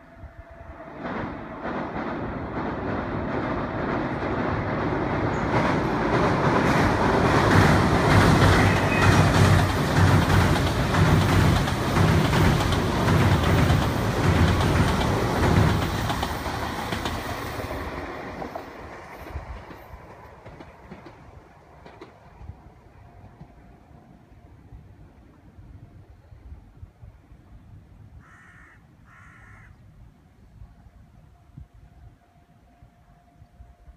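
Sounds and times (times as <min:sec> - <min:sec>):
electric train passing at speed: 0:00.0 - 0:28.2
train wheels clattering over rail joints: 0:01.0 - 0:22.5.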